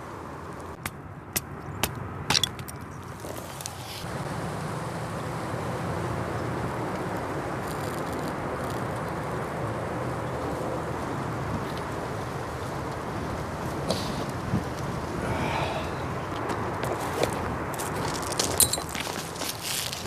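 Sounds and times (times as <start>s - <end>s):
steady rushing noise: 3.6s - 18.6s.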